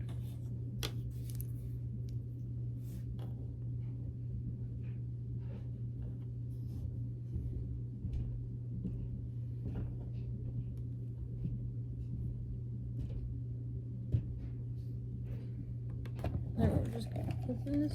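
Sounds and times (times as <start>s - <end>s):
plastic toys and packaging handled: 0.0s - 1.7s
steady low hum: 0.0s - 17.9s.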